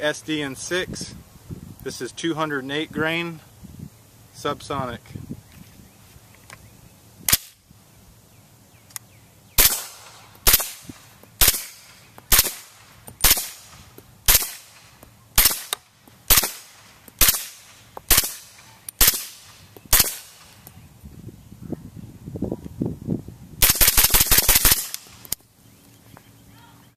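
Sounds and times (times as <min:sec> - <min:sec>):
suppressed gunshots: 0:09.6 - 0:14.8, 0:15.4 - 0:20.5.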